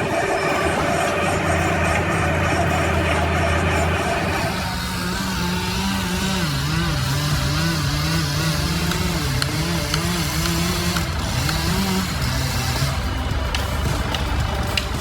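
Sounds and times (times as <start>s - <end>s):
engine revving up and down: 0.0s - 15.0s.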